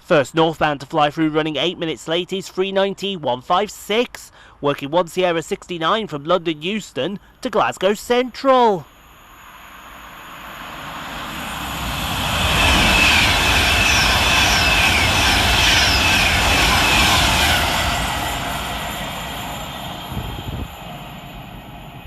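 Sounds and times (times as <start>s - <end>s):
electric train passing at speed: 7.2s - 22.0s.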